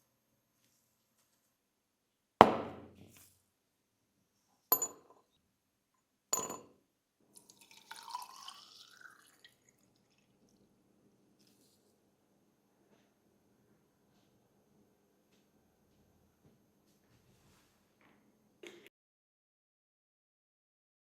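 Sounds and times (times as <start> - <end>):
hard objects clinking on surface: 4.7 - 5.2, 6.4 - 6.6.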